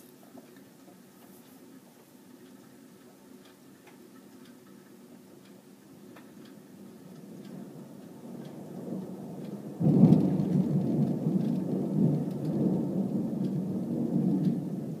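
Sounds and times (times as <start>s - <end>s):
rain falling: 6.0s - 15.0s
thunder rumbling and pealing: 7.6s - 15.0s.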